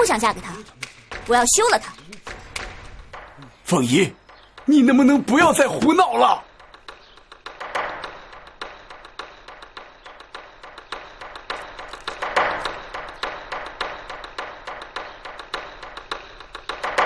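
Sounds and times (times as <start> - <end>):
quick percussive ticks: 4.2 - 17.0.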